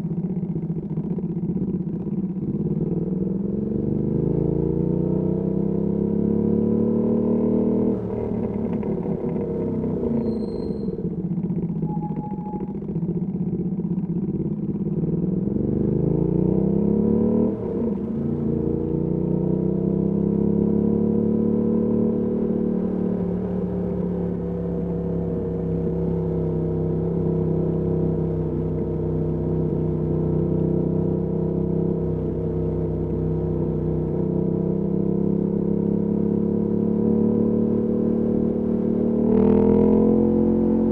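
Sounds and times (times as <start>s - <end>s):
motorcycle engine revving: 15.0s - 40.9s.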